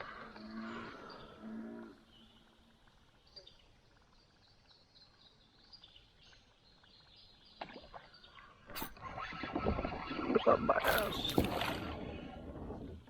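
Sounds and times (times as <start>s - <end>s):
low drawn-out animal call: 0.0s - 2.5s
small birds chirping: 0.0s - 8.8s.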